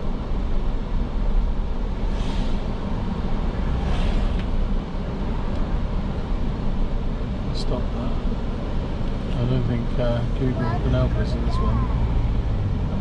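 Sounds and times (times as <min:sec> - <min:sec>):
car engine and tyres rumbling: 0:00.0 - 0:13.0
faint hiss swishes: 0:02.0 - 0:04.8.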